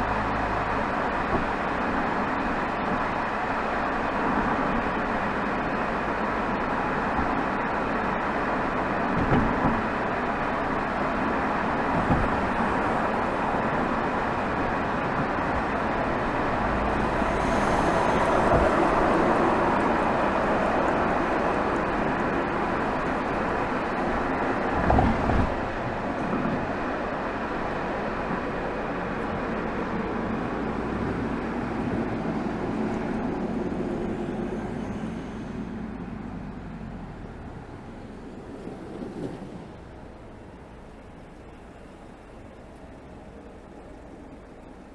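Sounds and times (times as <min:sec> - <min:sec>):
car exhaust: 0:15.3 - 0:24.0.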